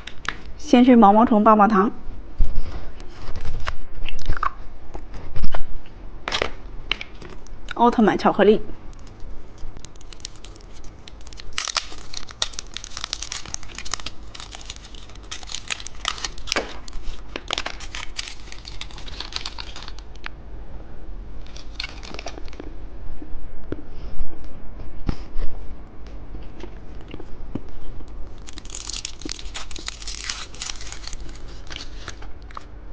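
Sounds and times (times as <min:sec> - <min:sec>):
candy wrapper crinkling and tearing: 0:08.9 - 0:20.3, 0:21.4 - 0:22.6, 0:28.3 - 0:32.7.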